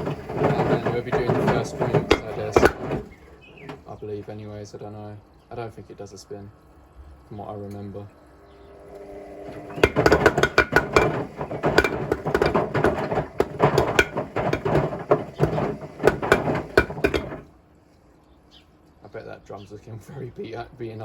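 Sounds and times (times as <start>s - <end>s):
bricks banging in washing machine drum: 0.0s - 3.8s, 9.2s - 17.5s
washing machine hum: 0.0s - 5.1s, 5.7s - 17.7s.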